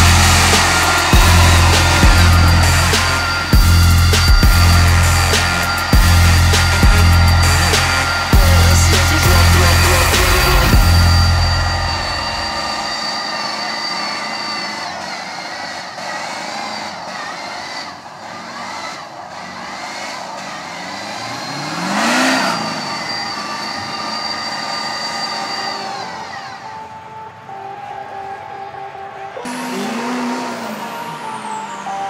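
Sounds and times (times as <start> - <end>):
truck engines whining: 0.0 - 32.0
vehicle passing by: 15.2 - 24.9, 29.2 - 32.0.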